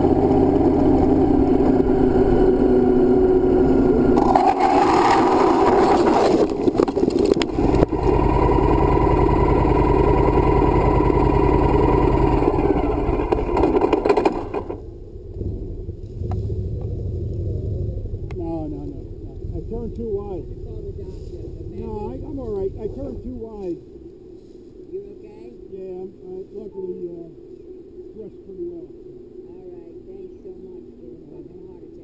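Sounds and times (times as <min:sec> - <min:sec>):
motorcycle engine running: 0:00.0 - 0:23.6
harsh scraping burst: 0:04.2 - 0:08.2.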